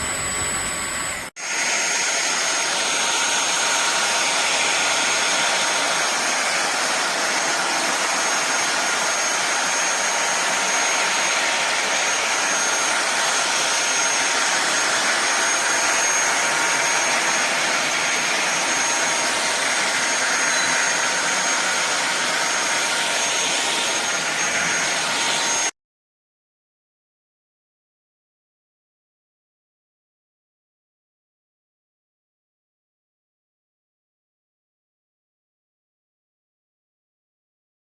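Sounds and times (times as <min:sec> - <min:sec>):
stick vacuum cleaner whining: 0:00.0 - 0:25.7.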